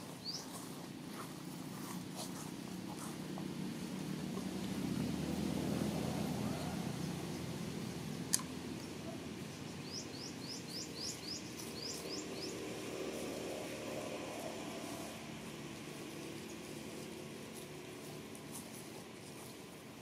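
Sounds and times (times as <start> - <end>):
outdoor background noise: 0.0 - 20.0
small bird chirping: 0.2 - 0.6, 8.9 - 12.9.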